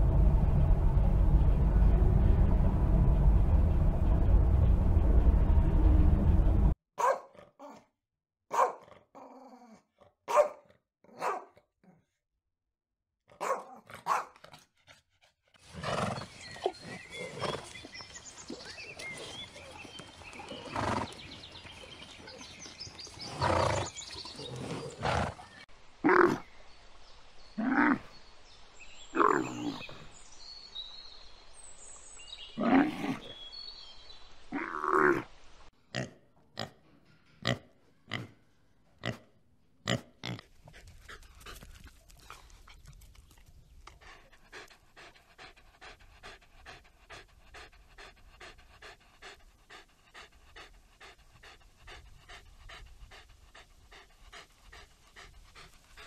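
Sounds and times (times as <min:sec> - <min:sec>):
dog barks: 0:07.0 - 0:07.8, 0:08.5 - 0:09.0, 0:10.3 - 0:11.7, 0:13.3 - 0:14.5
pig grunts: 0:39.0 - 0:40.5.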